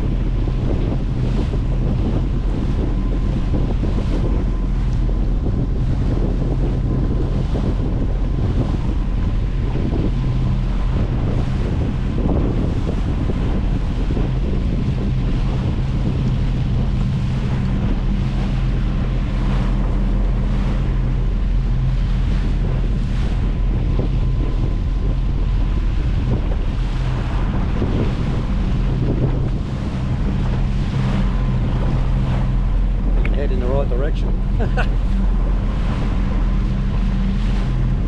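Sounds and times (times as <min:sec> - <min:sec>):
boat engine running: 0:00.0 - 0:38.0
water rushing past hull: 0:00.0 - 0:38.0
wind buffeting microphone: 0:00.0 - 0:38.0.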